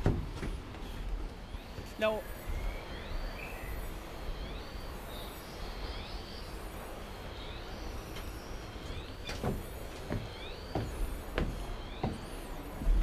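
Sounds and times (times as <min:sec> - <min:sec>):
birds whistling: 0:00.4 - 0:13.0.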